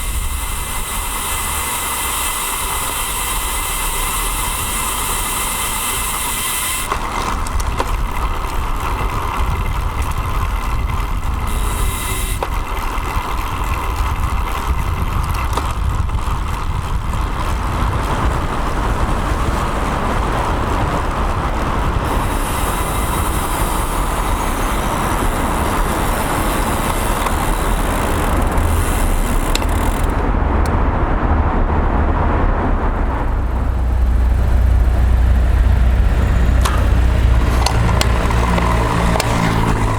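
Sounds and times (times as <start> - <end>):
wind noise: 0.0 - 39.9
deep rumble: 27.5 - 39.9.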